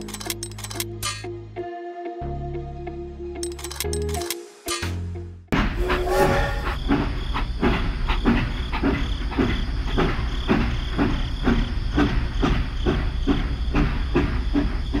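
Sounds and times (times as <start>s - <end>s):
toy train clacking on track: 0.0s - 1.3s, 3.4s - 4.8s.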